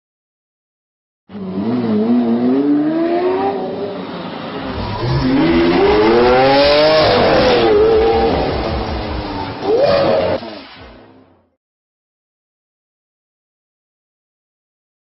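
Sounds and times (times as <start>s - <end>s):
car engine accelerating: 1.3s - 11.3s.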